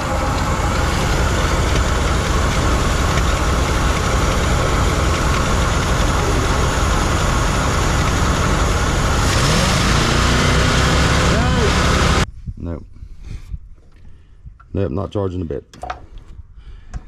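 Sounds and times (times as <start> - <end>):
truck engine running: 0.0 - 12.2.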